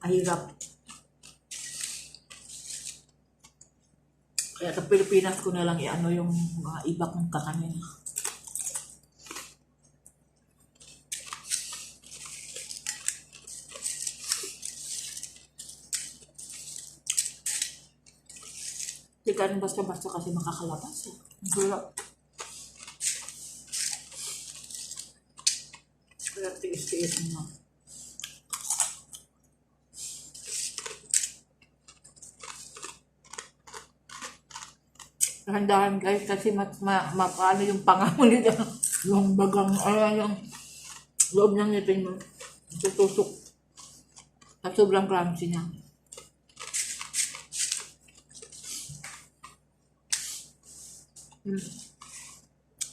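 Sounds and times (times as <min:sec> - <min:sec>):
crunchy flatbread being chewed: 0:00.4 - 0:04.7, 0:07.8 - 0:19.2, 0:19.9 - 0:35.5, 0:38.5 - 0:41.4, 0:42.1 - 0:44.7, 0:45.8 - 0:52.9.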